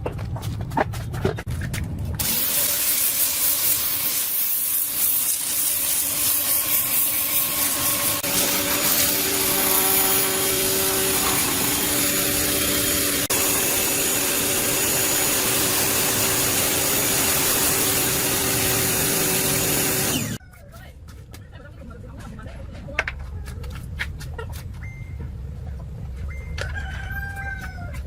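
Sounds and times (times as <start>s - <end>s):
power tool running with hiss: 2.2s - 20.4s.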